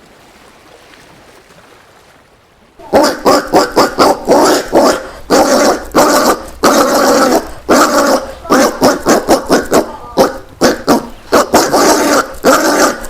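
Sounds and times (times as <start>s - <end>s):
peccary grunting barks: 2.8s - 13.0s.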